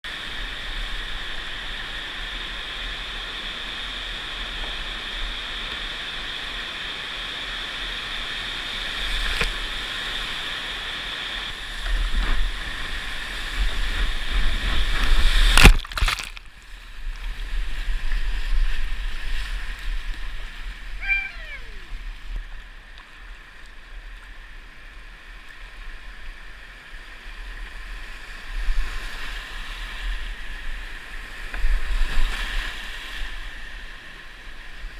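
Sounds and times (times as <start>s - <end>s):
water rumbling and splashing: 9.0s - 34.5s
short falling squeal: 21.0s - 22.0s.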